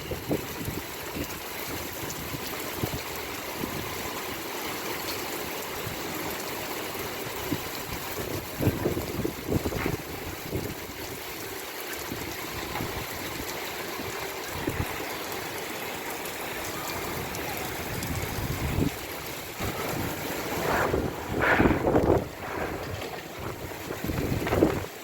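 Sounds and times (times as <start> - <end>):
heavy rain falling: 0.0 - 25.0
wind gusts buffeting microphone: 7.4 - 11.1, 17.0 - 25.0.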